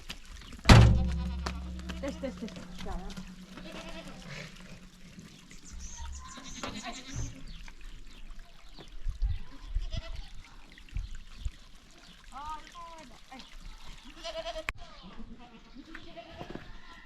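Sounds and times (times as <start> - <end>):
dull low thumps: 0.6 - 6.2
goats bleating: 0.8 - 5.2, 5.8 - 7.4, 14.1 - 16.5.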